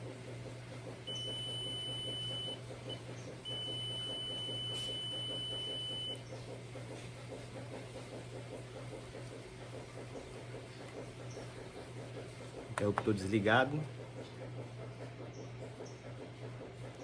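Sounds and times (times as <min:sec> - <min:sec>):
multimeter continuity beeper tone: 0:01.1 - 0:06.2.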